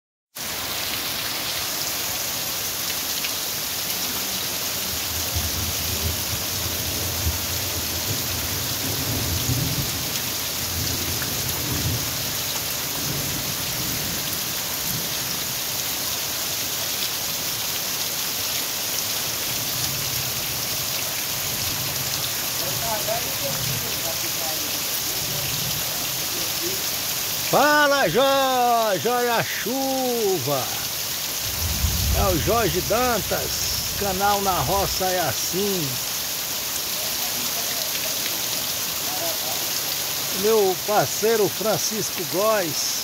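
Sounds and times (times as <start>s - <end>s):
heavy rain pouring: 0.4s - 43.0s
thunder rumbling: 31.4s - 34.1s.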